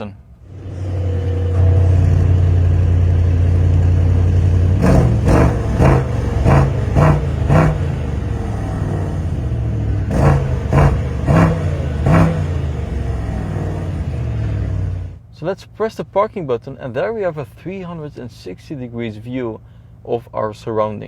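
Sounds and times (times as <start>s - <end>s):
car engine idling and revving: 0.4s - 15.2s.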